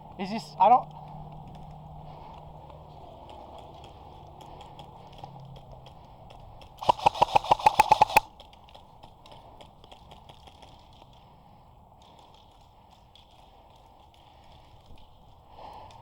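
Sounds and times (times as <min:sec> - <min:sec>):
airsoft gun firing rapid burst: 0:06.8 - 0:08.3.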